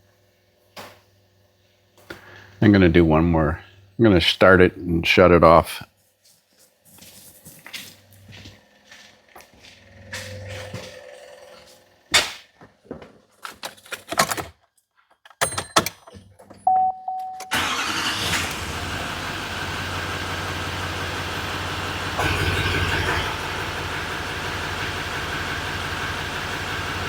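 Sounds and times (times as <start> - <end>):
chime-like tone: 16.7 - 17.6
diesel engine cranking and idling: 17.5 - 27.0.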